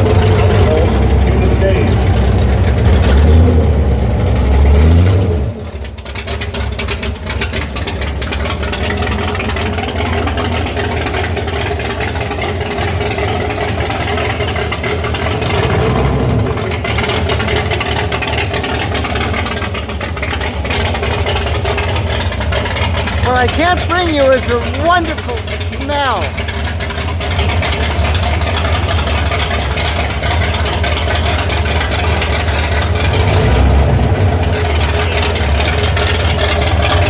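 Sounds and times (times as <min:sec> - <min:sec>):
car engine running with open exhaust: 0:00.0 - 0:37.0.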